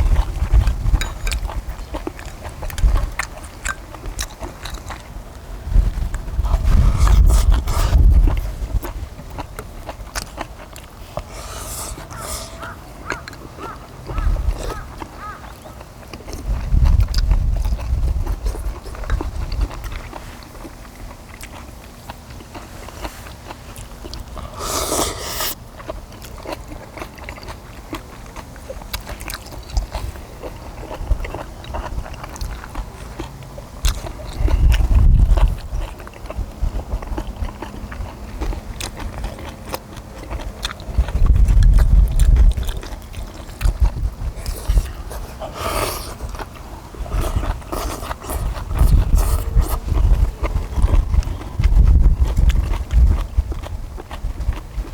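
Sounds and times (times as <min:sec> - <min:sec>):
wet chewing with clicks and smacks: 0:00.0 - 0:54.9
rustle or slurp: 0:05.8 - 0:09.0, 0:10.2 - 0:13.8, 0:22.5 - 0:25.6, 0:40.8 - 0:53.2.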